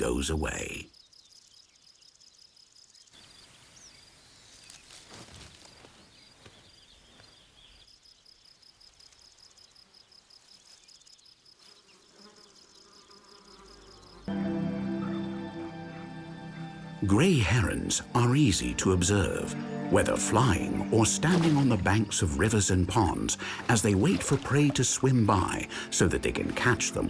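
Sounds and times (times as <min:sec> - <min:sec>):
insect chorus trilling: 0:07.6 - 0:14.3.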